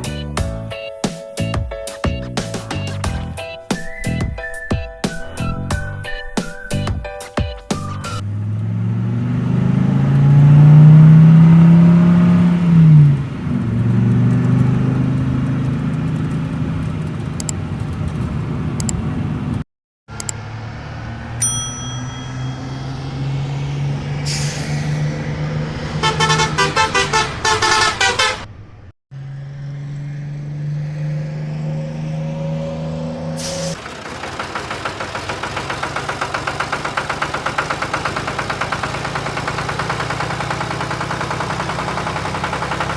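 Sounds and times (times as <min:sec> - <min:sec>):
heavy vehicle engine revving: 0:07.8 - 0:21.4, 0:22.4 - 0:42.9
short high tone: 0:21.3 - 0:24.9.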